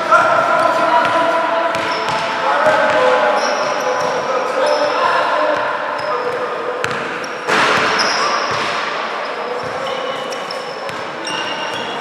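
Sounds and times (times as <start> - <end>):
crowd and player voices: 0.0 - 12.0
sneakers squeaking on court: 0.5 - 12.0
basketball bouncing: 0.7 - 3.0, 6.2 - 8.9.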